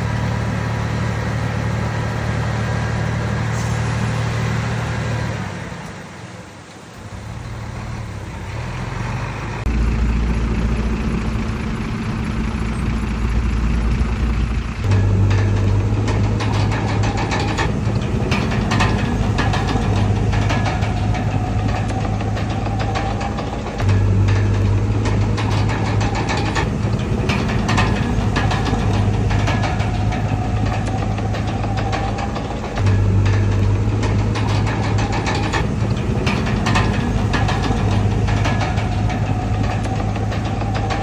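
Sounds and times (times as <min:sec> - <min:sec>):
heavy diesel engines running: 0:00.0 - 0:41.0
quick clanks and rattles: 0:09.6 - 0:41.0.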